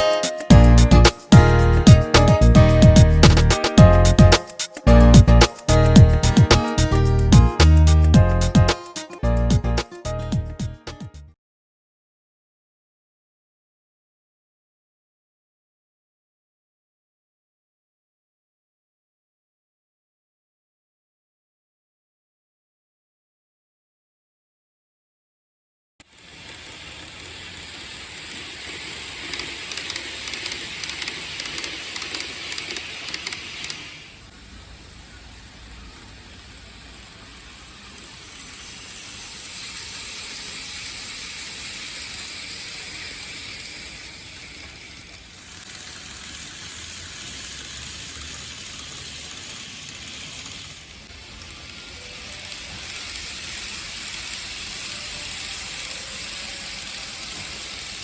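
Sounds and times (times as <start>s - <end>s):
model train whirring on track: 26.0s - 58.0s
quick clicks: 28.8s - 34.2s.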